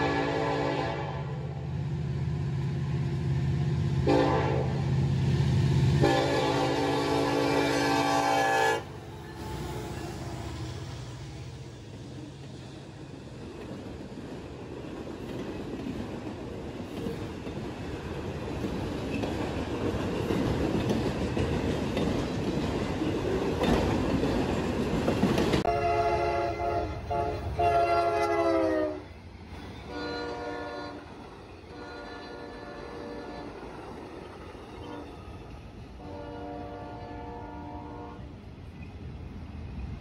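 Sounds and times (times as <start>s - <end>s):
train air horn: 0.0s - 1.6s, 4.0s - 5.0s, 6.0s - 9.8s, 25.6s - 29.1s, 29.8s - 33.7s, 34.8s - 35.2s, 36.0s - 38.3s
freight cars wheel and rail noise: 0.0s - 40.0s.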